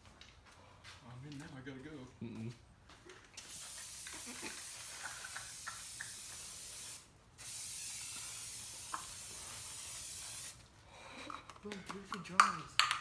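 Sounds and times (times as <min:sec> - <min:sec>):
spray paint can hissing: 0:03.4 - 0:10.6.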